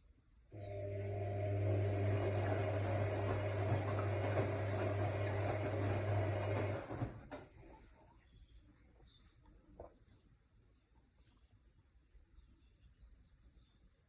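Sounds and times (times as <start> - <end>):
washing machine motor hum: 0.5 - 7.4.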